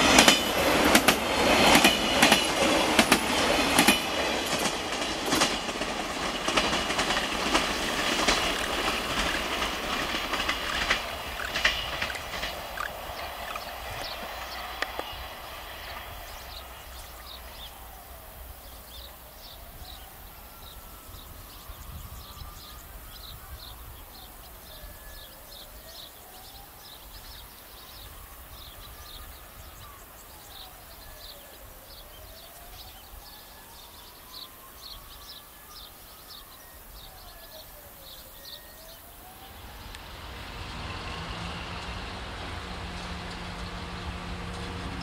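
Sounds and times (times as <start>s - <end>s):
birds chirping: 0.0s - 40.0s
diesel train running on track: 0.0s - 45.0s.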